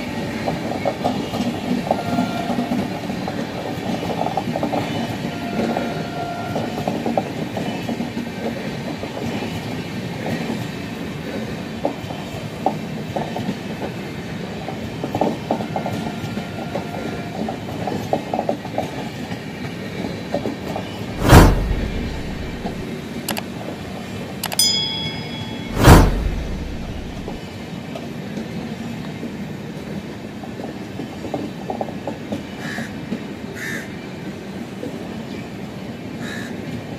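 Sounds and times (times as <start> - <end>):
train wheels rumbling on rails: 0.0 - 36.9
loud blast of noise: 21.1 - 22.9, 25.7 - 27.4.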